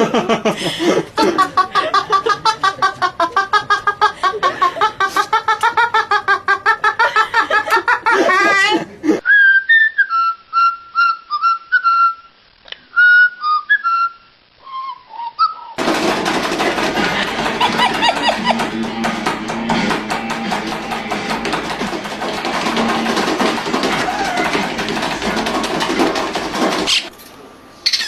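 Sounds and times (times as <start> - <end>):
whistled notes: 9.2 - 15.8
rapidly pulsing pitched sound: 15.8 - 27.1.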